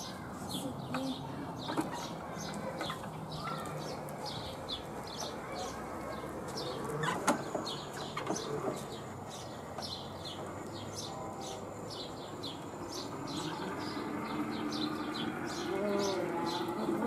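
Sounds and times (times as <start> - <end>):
bird chirping: 0.0 - 17.0
wooden buggy rolling on concrete: 0.0 - 17.0.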